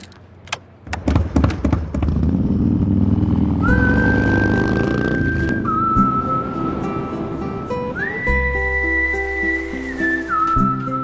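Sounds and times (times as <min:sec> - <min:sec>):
motorcycle engine rumbling: 0:00.2 - 0:10.4
long whistled note: 0:03.6 - 0:11.0.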